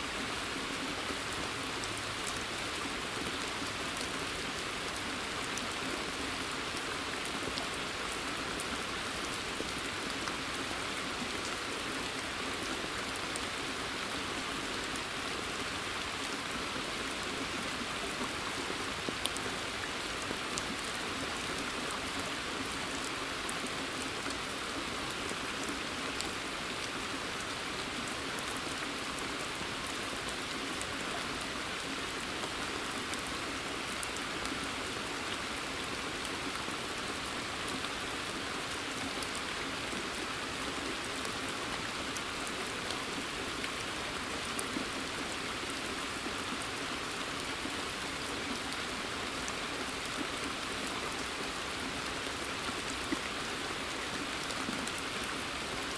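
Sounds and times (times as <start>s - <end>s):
steady rain in a forest: 0.0s - 55.9s.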